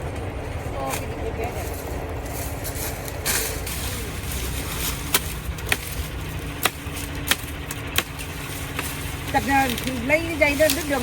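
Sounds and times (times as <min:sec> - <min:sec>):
steady low rumble: 0:00.0 - 0:11.0
machete chopping cane stalks: 0:00.9 - 0:11.0.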